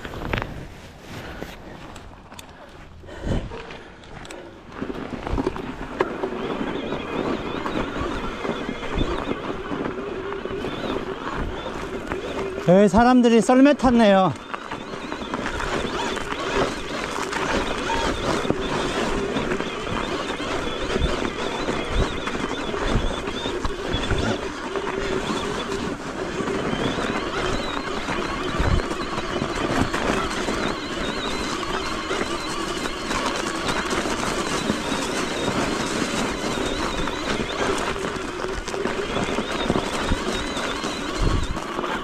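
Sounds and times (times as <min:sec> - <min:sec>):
bike tyres crunching and rattling: 0:00.0 - 0:42.0.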